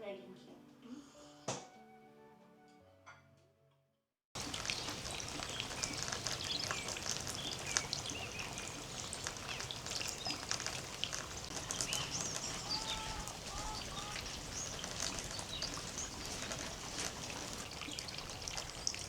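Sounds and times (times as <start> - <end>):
music: 0.0 - 4.0
birds chirping: 4.4 - 19.0
steady rain falling: 4.4 - 19.0.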